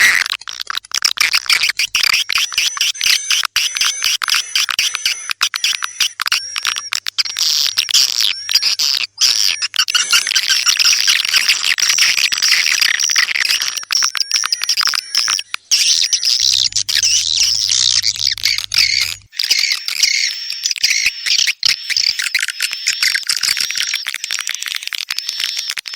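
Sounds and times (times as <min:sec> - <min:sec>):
swiftlets twittering: 0:01.2 - 0:19.3.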